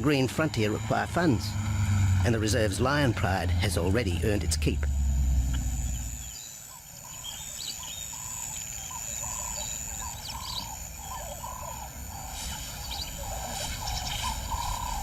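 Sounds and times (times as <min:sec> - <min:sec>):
low background rumble: 0:00.0 - 0:06.4
birds calling: 0:00.0 - 0:15.0
higher bird chirps: 0:05.6 - 0:15.0.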